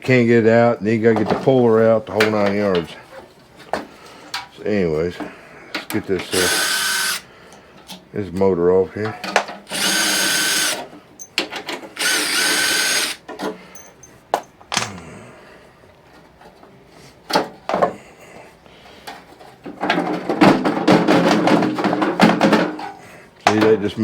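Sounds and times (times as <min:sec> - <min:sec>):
power drill whining: 0:06.3 - 0:07.3, 0:09.7 - 0:10.8, 0:12.0 - 0:13.2.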